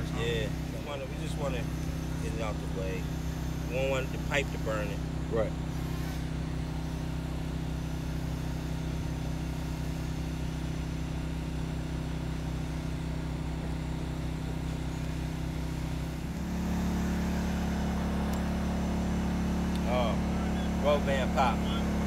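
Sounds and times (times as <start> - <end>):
heat gun humming: 14.3 - 22.0.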